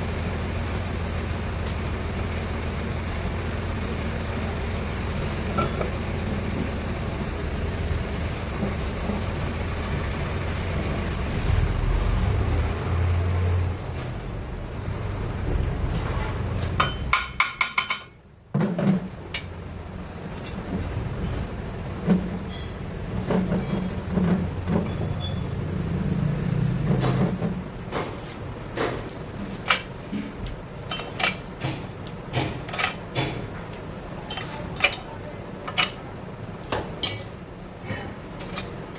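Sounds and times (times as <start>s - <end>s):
metal parts and tools handled: 15.9s - 18.2s, 28.9s - 36.1s, 37.0s - 37.4s, 38.4s - 38.9s
metal clinks: 16.8s - 18.4s, 30.4s - 36.0s, 37.0s - 37.4s, 38.4s - 38.9s.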